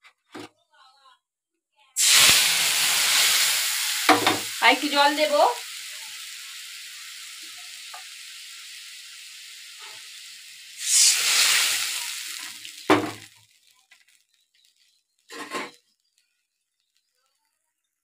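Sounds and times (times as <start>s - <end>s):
water poured into hot oil hissing: 2.0s - 17.6s
spice paste sizzling in oil: 2.0s - 18.0s.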